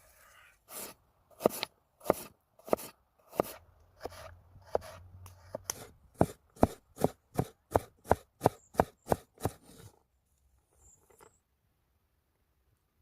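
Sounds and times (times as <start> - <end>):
knife chopping food: 0.7 - 9.6.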